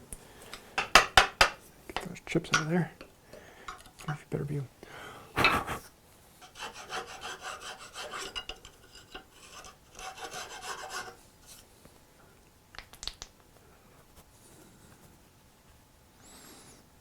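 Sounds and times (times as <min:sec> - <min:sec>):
hand tool scraping wood: 0:05.4 - 0:11.6.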